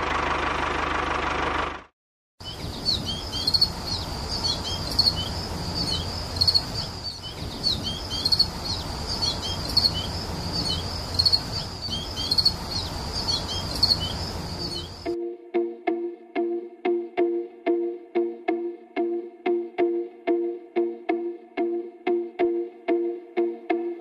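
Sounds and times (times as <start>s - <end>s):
high-pitched chirping: 2.4s - 15.2s
plucked music: 15.1s - 24.0s.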